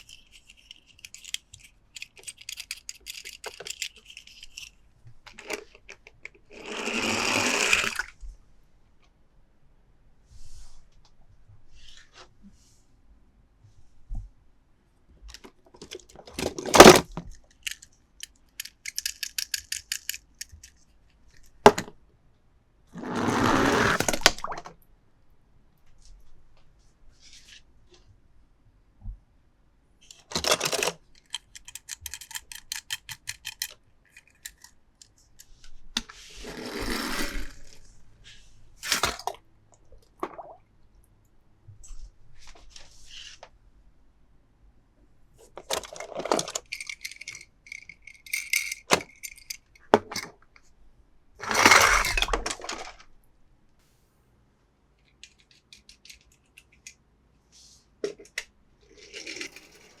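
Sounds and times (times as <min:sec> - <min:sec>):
toy cars clicking and rattling: 0:00.0 - 0:08.1, 0:15.8 - 0:21.6, 0:30.0 - 0:35.6, 0:45.6 - 0:50.3, 0:51.4 - 0:53.0, 0:55.0 - 0:57.0, 0:58.1 - 1:00.0.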